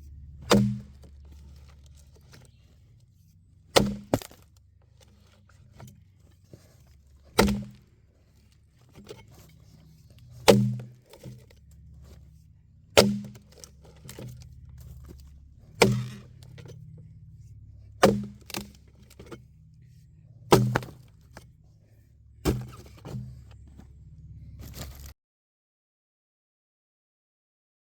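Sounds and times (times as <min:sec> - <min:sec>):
axe chopping log: 0:00.4 - 0:02.5, 0:03.7 - 0:06.0, 0:06.6 - 0:07.9, 0:10.2 - 0:11.5, 0:13.0 - 0:15.2, 0:15.8 - 0:16.6, 0:18.0 - 0:19.3, 0:20.5 - 0:21.4, 0:22.4 - 0:23.4.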